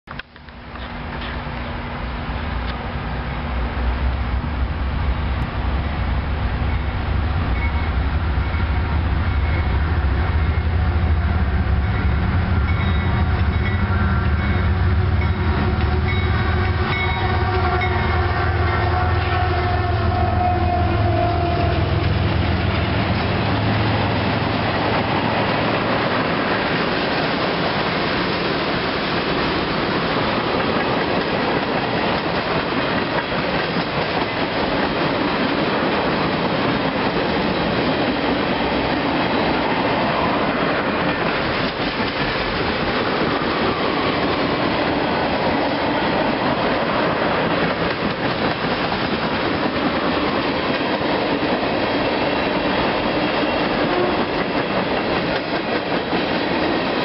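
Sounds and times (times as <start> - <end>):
diesel locomotive droning: 0.1 - 57.0
wheels clacking over rail joints: 21.2 - 57.0.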